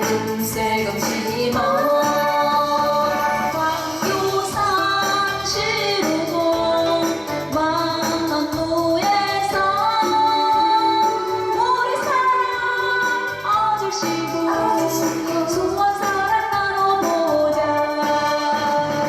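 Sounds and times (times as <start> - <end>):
backing music: 0.0 - 19.0
woman singing: 0.0 - 19.0.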